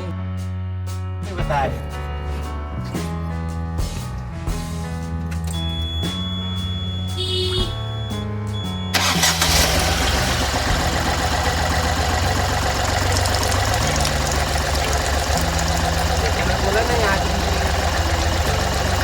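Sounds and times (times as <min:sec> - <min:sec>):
background music: 0:00.0 - 0:19.0
diesel engine starting and idling: 0:07.7 - 0:19.0.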